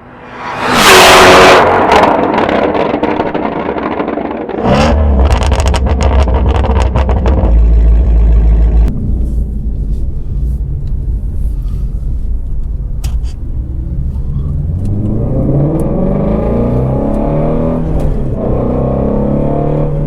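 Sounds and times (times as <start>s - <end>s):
car engine revving: 0.0s - 11.6s, 13.1s - 20.0s
exhaust crackles and pops: 1.9s - 11.3s.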